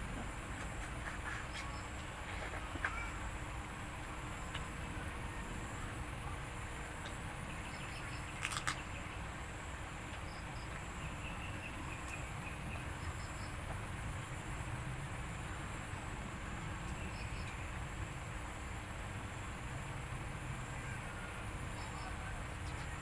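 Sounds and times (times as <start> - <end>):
faint insect chirps: 4.3 - 16.0, 16.6 - 23.0.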